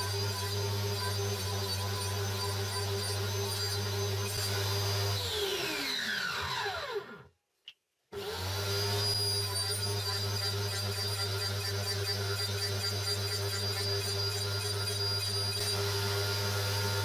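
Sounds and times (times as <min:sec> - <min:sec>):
click: 0:07.6 - 0:07.8
power tool motor whining: 0:08.2 - 0:17.0.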